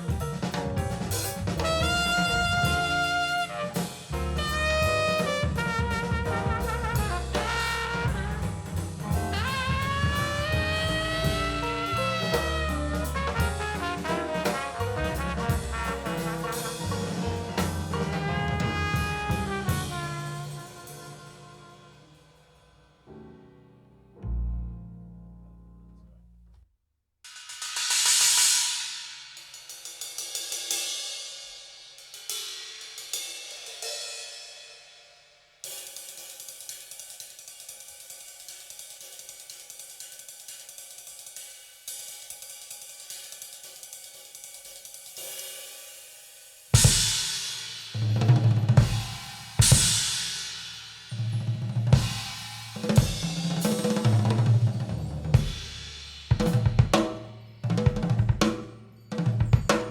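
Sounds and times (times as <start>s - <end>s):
drum kit kick and snare: 0.0s - 22.0s, 46.8s - 58.8s, 59.4s - 59.9s
cymbal strokes: 27.4s - 48.2s, 48.8s - 54.3s.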